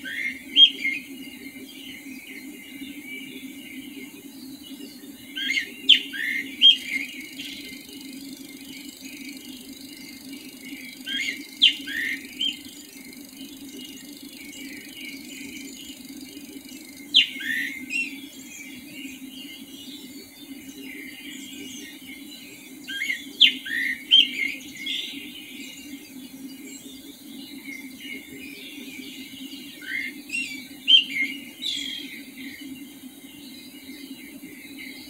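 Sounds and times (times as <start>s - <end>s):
birds chirping: 0.0s - 35.0s
steady low hum: 0.0s - 35.0s.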